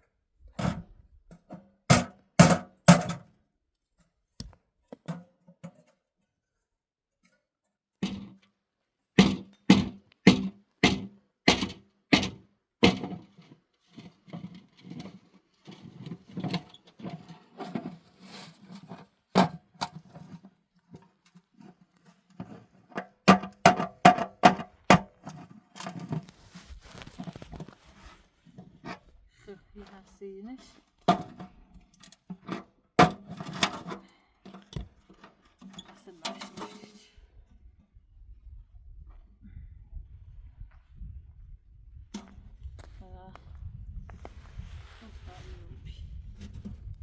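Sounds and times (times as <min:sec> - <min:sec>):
scraping and rustling: 0:25.3 - 0:29.2.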